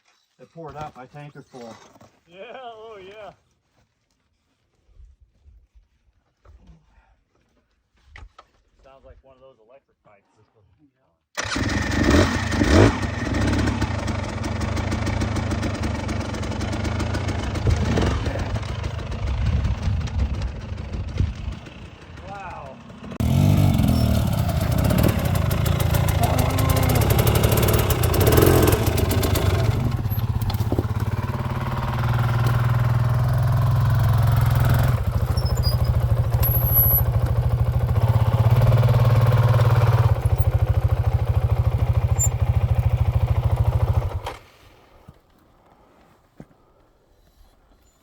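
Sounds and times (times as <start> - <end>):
dirt bike engine running: 11.5 - 44.4.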